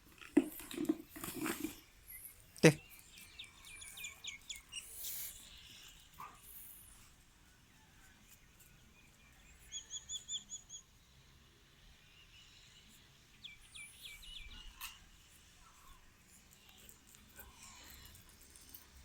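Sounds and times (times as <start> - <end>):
faint bird chirps: 2.0 - 11.3, 12.0 - 16.0.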